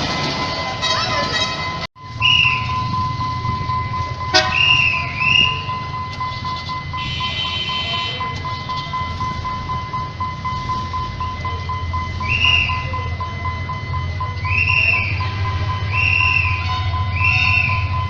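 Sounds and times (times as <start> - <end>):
steady low rumble: 2.0 - 7.1
vehicle horn: 4.3 - 4.8, 7.0 - 8.2.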